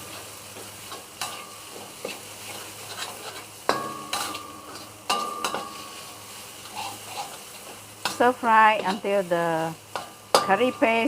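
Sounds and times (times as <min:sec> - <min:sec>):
paste sizzling in a pan: 0:00.0 - 0:11.0
spatula clinking against pan: 0:03.7 - 0:05.8, 0:09.9 - 0:10.8.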